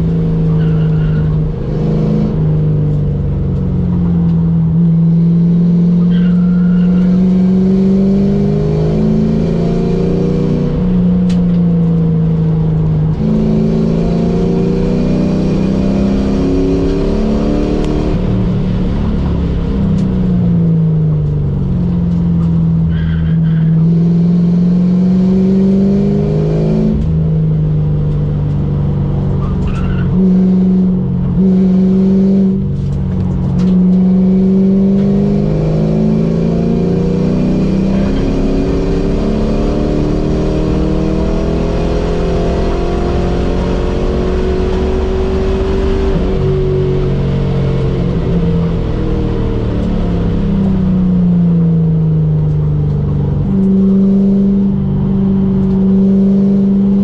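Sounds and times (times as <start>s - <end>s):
race car engine from cabin: 0.0s - 57.0s.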